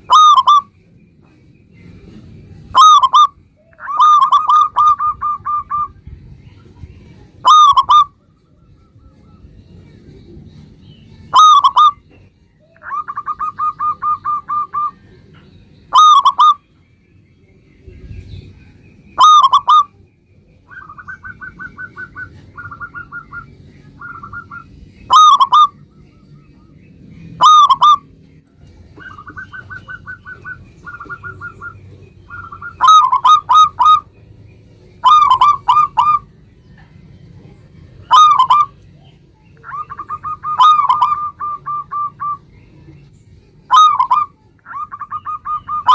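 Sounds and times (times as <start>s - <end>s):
doves cooing: 0.0s - 0.7s, 1.9s - 6.0s, 7.4s - 8.3s, 11.3s - 15.2s, 15.9s - 16.6s, 19.2s - 19.9s, 20.6s - 26.0s, 27.3s - 34.2s, 35.0s - 36.9s, 37.9s - 38.8s, 39.6s - 43.0s, 43.7s - 45.9s.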